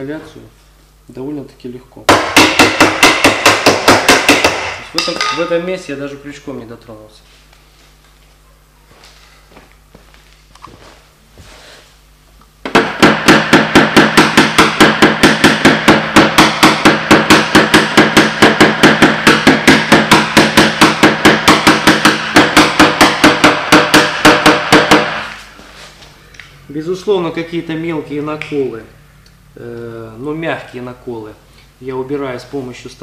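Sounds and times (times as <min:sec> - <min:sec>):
hammer tapping sheet metal: 0:02.1 - 0:05.5, 0:12.7 - 0:25.4.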